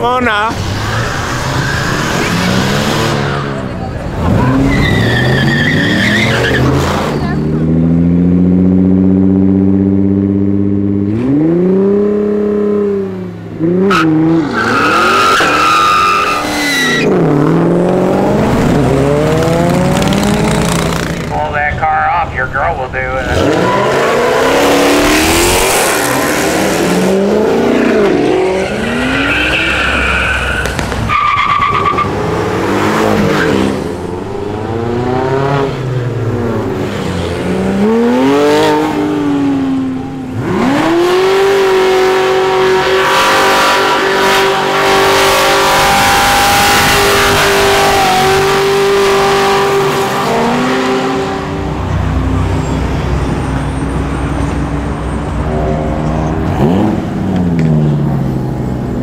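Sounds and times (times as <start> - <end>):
cars accelerating hard: 0.2 - 59.0
tire squeal: 0.6 - 7.5, 13.9 - 17.2, 23.4 - 24.2, 28.5 - 32.2.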